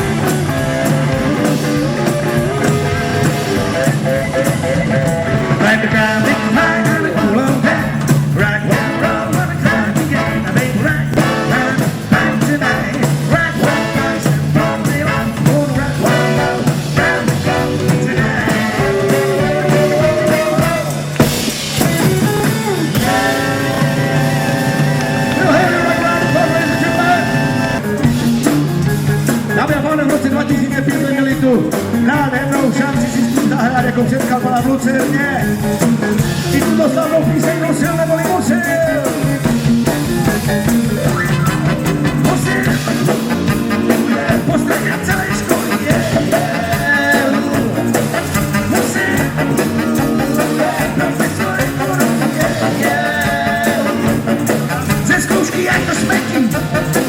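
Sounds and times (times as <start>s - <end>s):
person singing: 0.0s - 27.9s, 29.4s - 57.0s
rock band playing: 0.0s - 57.0s.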